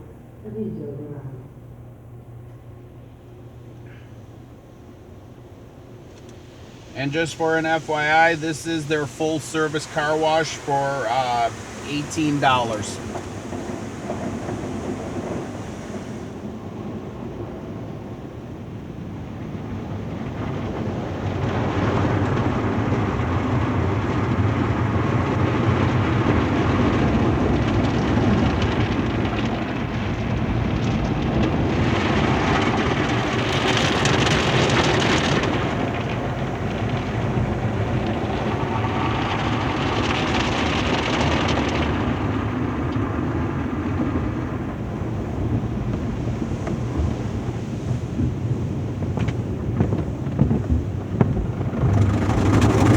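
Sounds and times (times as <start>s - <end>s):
steady low hum: 0.0s - 20.5s
car wash equipment working: 1.8s - 52.9s
water spraying: 6.3s - 16.4s
hissing spray: 6.6s - 16.3s.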